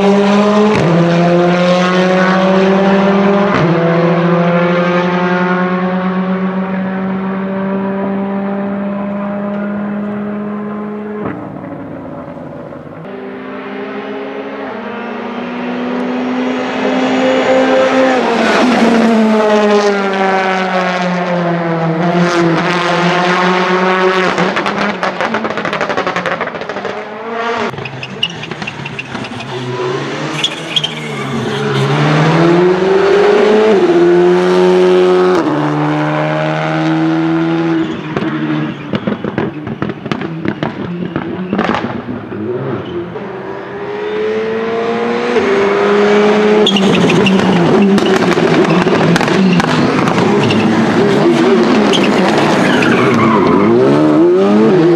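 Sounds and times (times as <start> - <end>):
rally car engines revving: 0.0 - 54.9
sharp cracks: 46.7 - 53.2.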